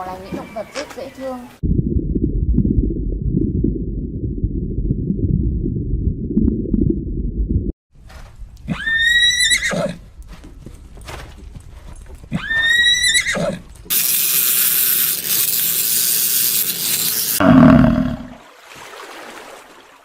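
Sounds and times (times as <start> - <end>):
loud low sound: 1.6 - 7.7
horse whinnying: 8.7 - 10.0, 12.3 - 13.7
steady hiss: 13.9 - 17.4.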